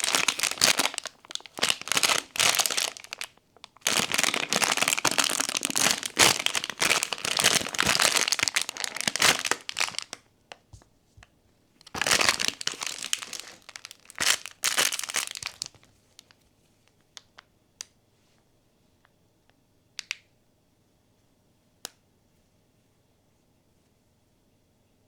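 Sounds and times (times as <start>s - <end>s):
packaging crinkling and tearing: 0.0s - 10.2s, 11.8s - 16.3s.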